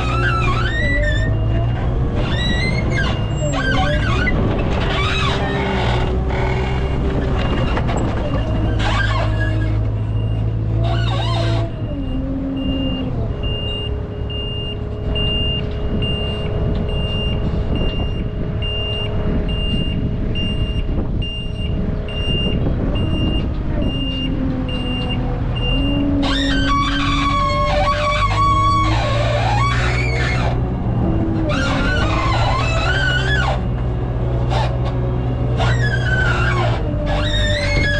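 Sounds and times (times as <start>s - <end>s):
diesel engine running: 0.0s - 37.9s
reverse alarm beeping: 12.6s - 26.0s.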